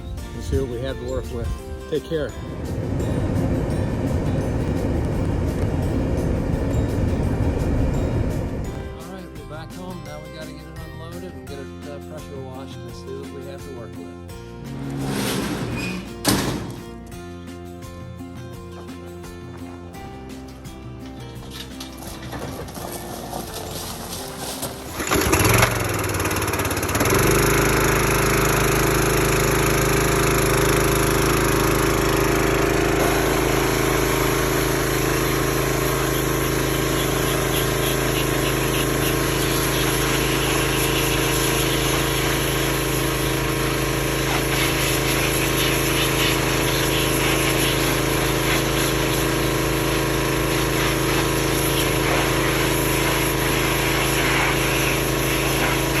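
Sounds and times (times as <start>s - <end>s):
engine running steadily: 0.0s - 9.9s, 21.4s - 56.0s
engine cranking and starting: 21.4s - 44.2s.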